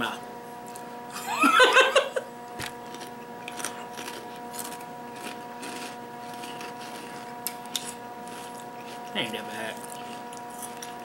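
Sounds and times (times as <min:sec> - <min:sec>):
steady low hum: 0:00.0 - 0:11.0
crunching crisp snacks: 0:02.8 - 0:11.0.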